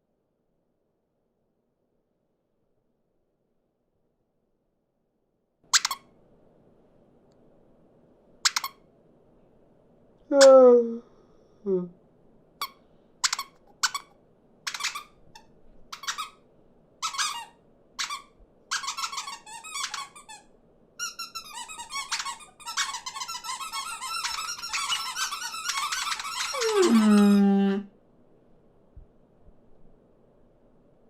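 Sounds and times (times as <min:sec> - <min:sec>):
cartoon birds chirping: 0:26.4 - 0:27.6.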